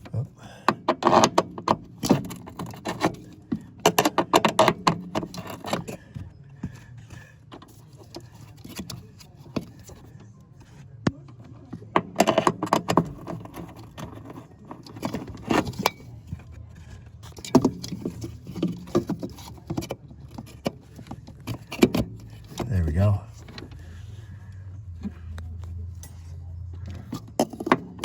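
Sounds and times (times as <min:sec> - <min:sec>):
plastic parts clicking and rattling: 0:00.7 - 0:06.7, 0:11.3 - 0:22.6.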